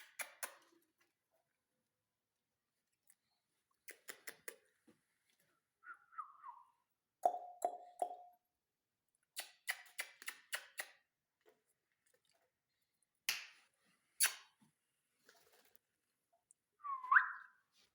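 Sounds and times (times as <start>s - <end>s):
parakeet falling whistle: 16.9s - 17.5s.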